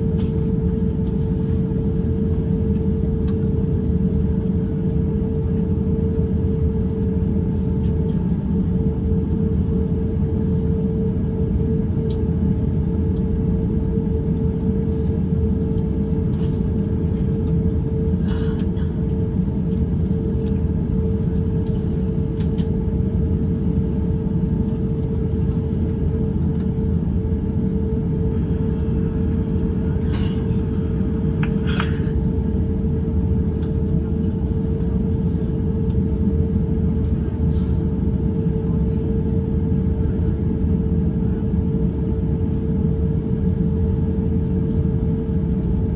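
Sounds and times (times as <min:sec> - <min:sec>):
airplane engines idling: 0:00.0 - 0:45.9
cabin air-conditioning hum: 0:00.0 - 0:45.9.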